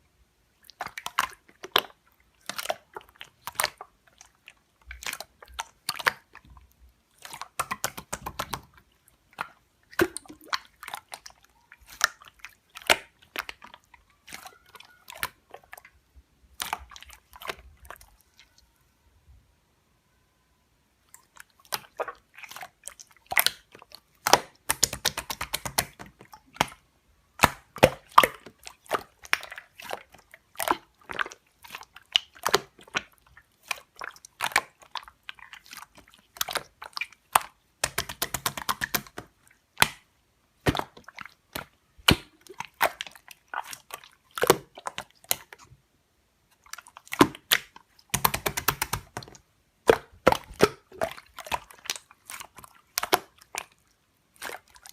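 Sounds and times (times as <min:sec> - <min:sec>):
slime squeezed by hand: 0:46.6 - 0:54.9.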